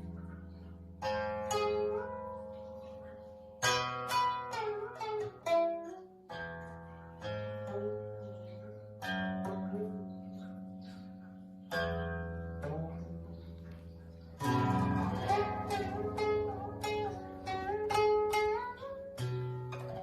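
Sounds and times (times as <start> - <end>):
plucked zither notes: 0.0 - 20.0.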